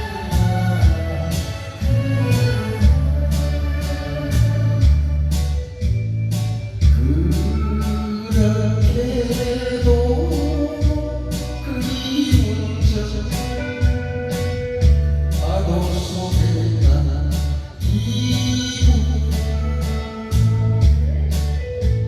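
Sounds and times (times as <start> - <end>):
person singing: 0.0 - 5.9, 6.9 - 22.0
band with beat and bass: 0.0 - 22.0.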